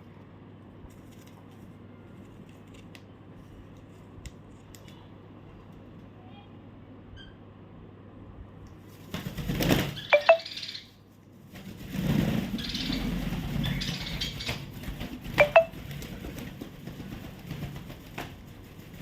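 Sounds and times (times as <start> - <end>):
rustling and handling noise: 0.0 - 6.1.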